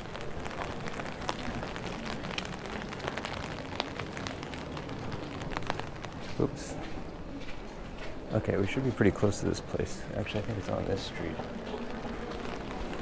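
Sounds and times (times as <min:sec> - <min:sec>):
raindrops ticking: 0:00.0 - 0:13.0
steady rain: 0:00.0 - 0:13.0.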